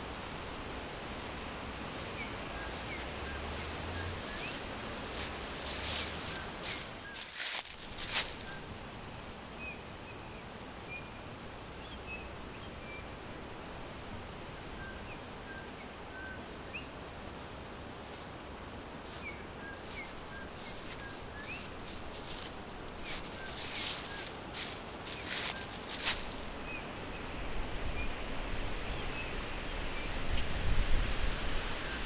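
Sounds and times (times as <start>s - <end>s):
small birds chirping: 0.0s - 8.8s, 14.9s - 26.9s
rustling: 0.0s - 8.9s, 17.2s - 26.8s
background hiss: 0.0s - 9.6s, 11.5s - 27.1s.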